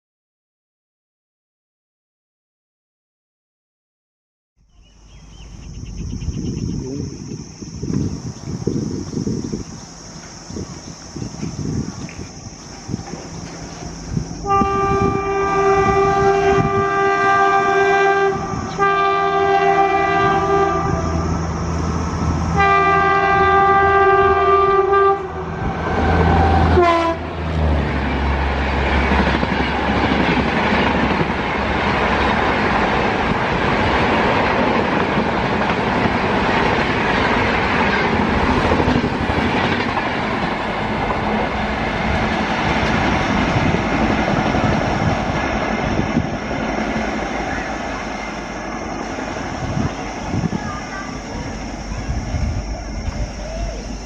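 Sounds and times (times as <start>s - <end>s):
train coaches rushing past: 5.2s - 54.0s
locomotive horn blasts: 14.4s - 21.4s, 22.5s - 27.4s
wheel clatter on rails: 28.9s - 54.0s.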